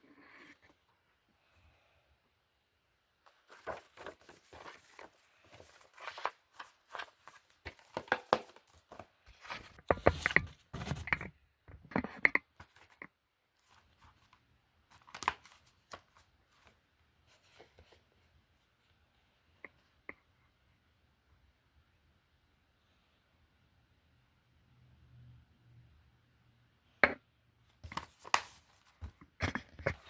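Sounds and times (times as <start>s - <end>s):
plastic cases clicking and crinkling: 3.3s - 11.4s.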